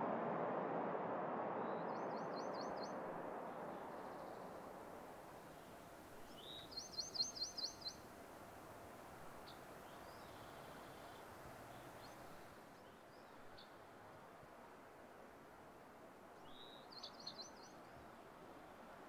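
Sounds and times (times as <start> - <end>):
faint outdoor hiss: 0.0 - 19.0
faint bird chirps: 1.6 - 3.0, 5.5 - 8.1, 9.4 - 13.8, 16.4 - 18.1
small bird singing: 6.2 - 8.1, 16.4 - 17.9.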